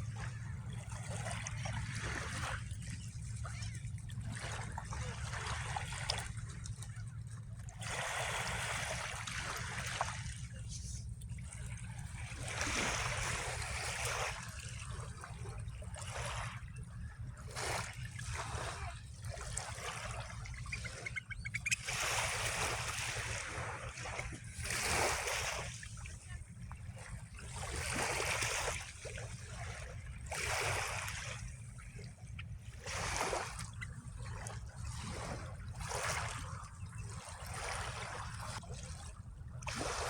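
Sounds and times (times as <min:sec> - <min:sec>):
steady low rumble: 0:00.0 - 0:24.7
water splashing and trickling: 0:00.0 - 0:40.0.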